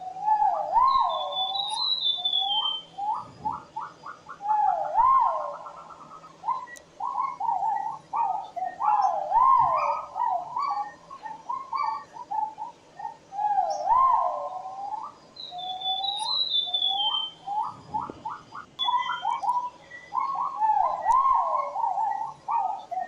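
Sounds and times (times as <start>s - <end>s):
pheasant whistled calls: 0.0s - 12.6s, 13.4s - 23.0s
faint high falling bird notes: 18.8s - 22.9s.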